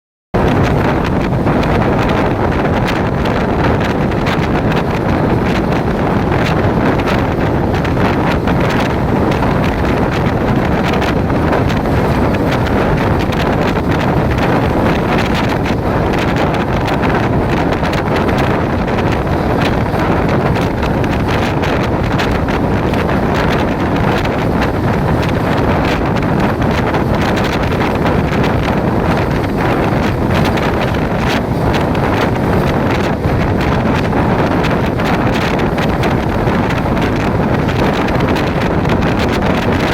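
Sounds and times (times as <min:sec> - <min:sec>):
wind rushing over microphone: 0:00.3 - 0:39.9
moving train rumble: 0:00.4 - 0:39.9.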